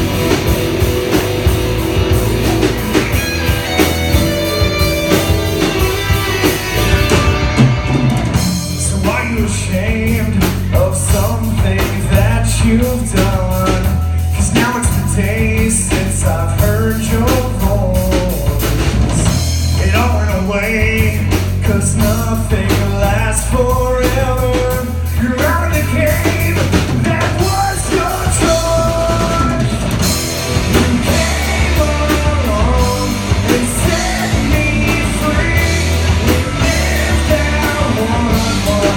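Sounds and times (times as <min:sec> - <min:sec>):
live rock band: 0:00.0 - 0:38.9
person singing: 0:19.8 - 0:38.9.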